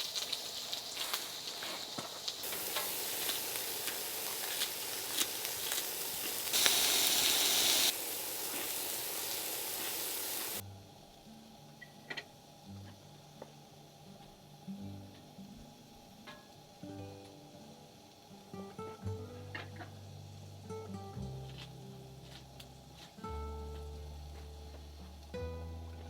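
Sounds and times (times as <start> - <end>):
food sizzling in a pan: 0.0 - 25.6
pops and stirring scrapes: 1.0 - 10.6
soft music: 14.1 - 26.0.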